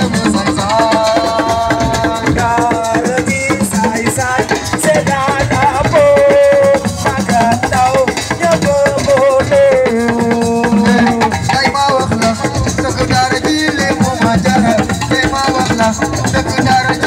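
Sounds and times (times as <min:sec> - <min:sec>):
drums in a fast beat: 0:00.0 - 0:17.0
rattling shakers: 0:00.0 - 0:17.0
bending melody line: 0:08.9 - 0:14.9.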